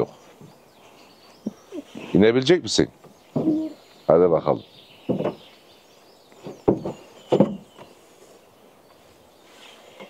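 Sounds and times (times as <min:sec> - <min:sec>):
dull thumps in car boot: 0:06.5 - 0:07.9.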